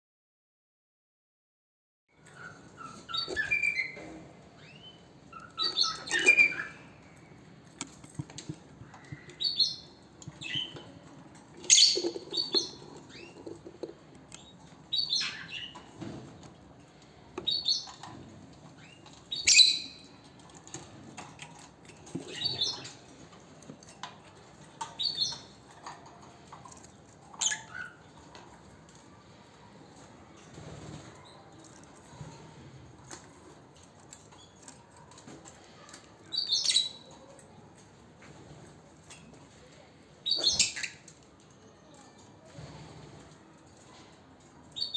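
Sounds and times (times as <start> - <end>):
lovebird chirping: 4.6 - 6.9, 11.6 - 13.4, 18.8 - 19.9.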